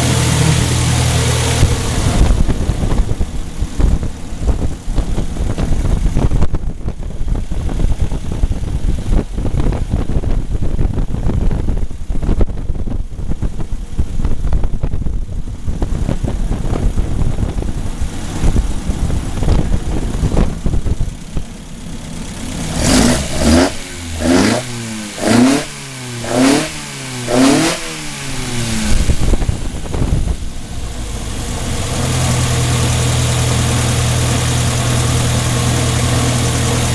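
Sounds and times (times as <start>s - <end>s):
race engine revving: 22.4s - 30.2s.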